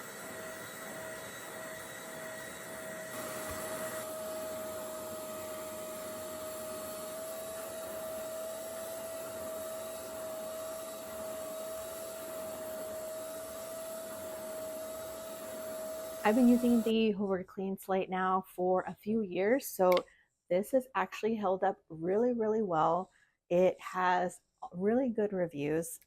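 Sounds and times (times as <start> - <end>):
carpet cleaner motor whine: 0.0 - 16.9.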